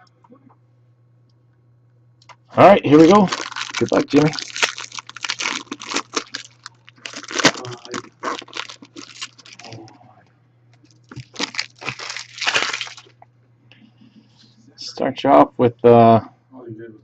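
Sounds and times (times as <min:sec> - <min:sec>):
plastic wrapping crinkling and tearing: 0:02.9 - 0:09.9, 0:10.9 - 0:13.1.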